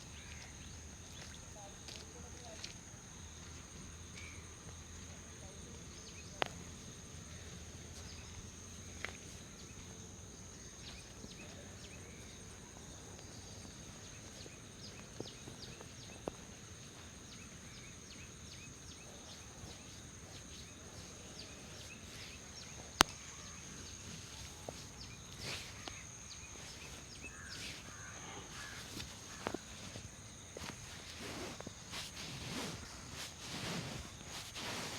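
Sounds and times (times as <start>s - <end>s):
high insect drone: 0.0s - 34.9s.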